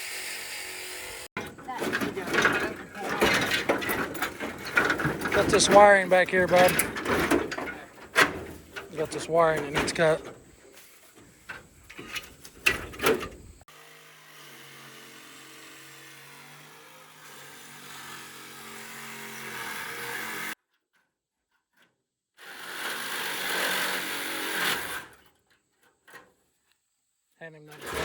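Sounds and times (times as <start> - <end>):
power saw cutting: 0.0 - 10.4, 13.3 - 20.6, 22.4 - 25.2.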